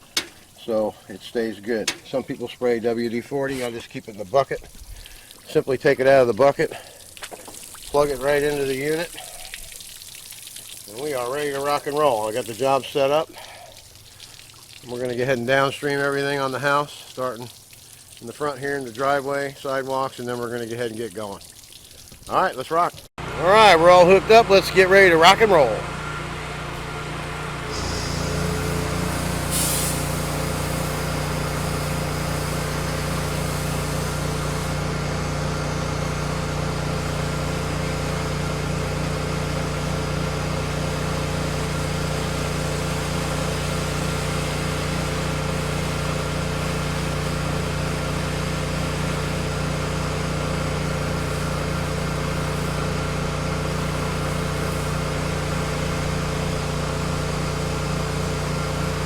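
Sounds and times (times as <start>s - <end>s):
petrol engine running: 23.2s - 41.8s
short hiss: 27.6s - 34.8s.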